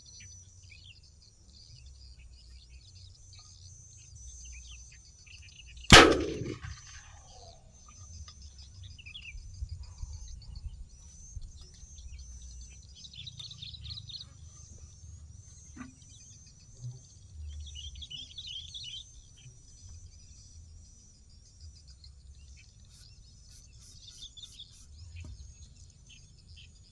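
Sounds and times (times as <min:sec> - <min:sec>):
birds chirping: 0:00.0 - 0:26.9
loud bang with ringing tail: 0:05.9 - 0:07.5.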